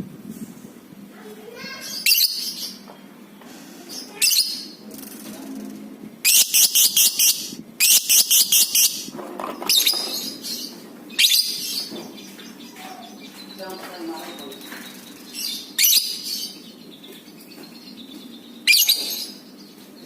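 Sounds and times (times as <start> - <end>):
lovebird chirping: 1.6 - 2.9, 6.2 - 20.0.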